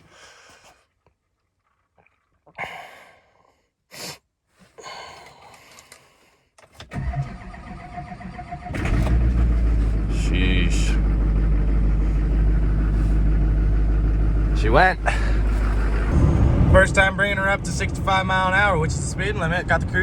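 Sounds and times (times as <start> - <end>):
diesel engine cranking and starting: 6.8 - 20.0.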